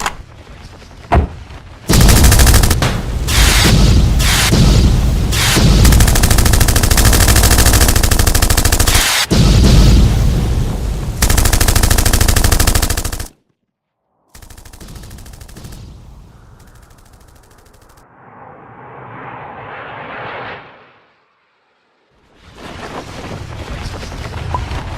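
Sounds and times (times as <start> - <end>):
rapid machine-gun fire: 1.9 - 4.7, 5.3 - 9.8, 11.2 - 13.4, 14.4 - 15.9
rising whoosh: 18.0 - 22.1.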